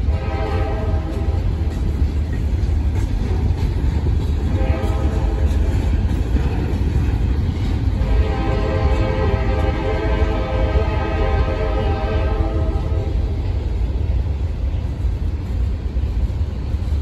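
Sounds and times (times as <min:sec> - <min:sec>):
freight train rolling past: 0:00.0 - 0:17.0.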